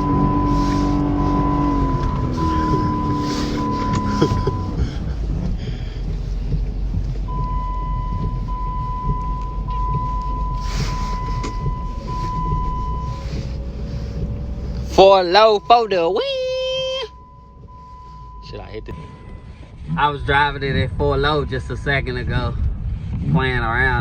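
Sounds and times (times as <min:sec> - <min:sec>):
high electronic tone: 0:00.0 - 0:04.8
engine and drivetrain rumbling: 0:00.0 - 0:24.0.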